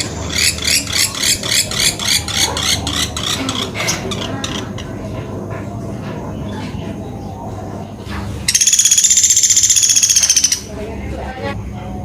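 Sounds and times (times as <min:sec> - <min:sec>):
bird calling sharp high notes: 0:08.5 - 0:10.7.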